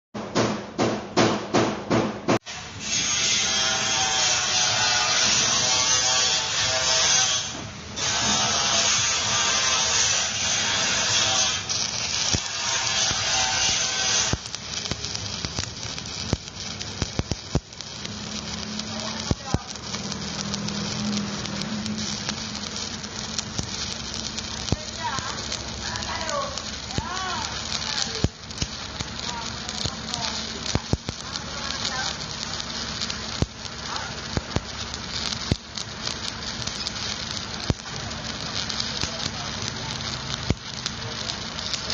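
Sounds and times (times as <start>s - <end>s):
welding arc crackling and sizzling: 2.4s - 41.9s
sharp pops and clicks: 11.3s - 41.9s.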